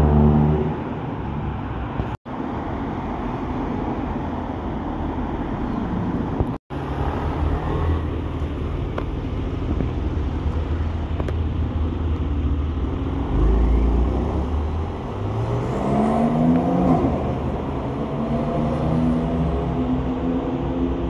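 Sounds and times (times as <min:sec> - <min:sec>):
sports car engines rumbling: 0:00.0 - 0:21.0
engine revving up: 0:13.2 - 0:20.1.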